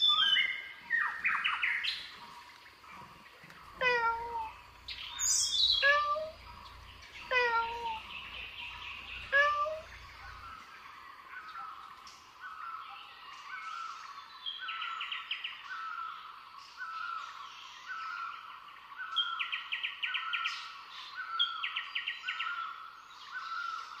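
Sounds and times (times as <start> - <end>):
rapid high bird trills: 3.7 - 10.5.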